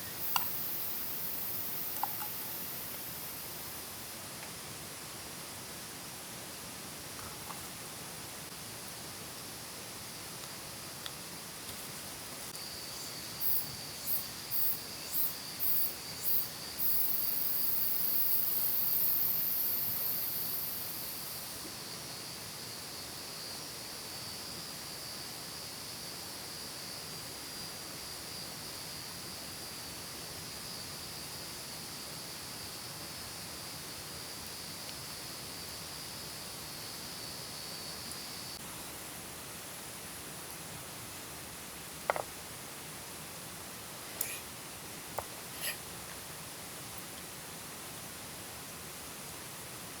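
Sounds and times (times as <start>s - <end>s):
insect high trill: 0.0s - 4.1s, 12.6s - 21.6s
insect short pulses: 0.0s - 4.1s, 12.0s - 21.6s, 45.5s - 45.9s
insect high buzz: 0.0s - 4.2s, 11.9s - 23.5s, 45.5s - 45.8s
steady hiss: 0.0s - 50.0s.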